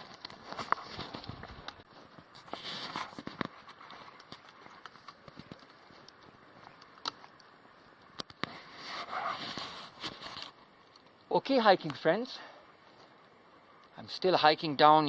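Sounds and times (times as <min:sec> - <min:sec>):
footsteps crunching on trail: 0:00.0 - 0:10.9.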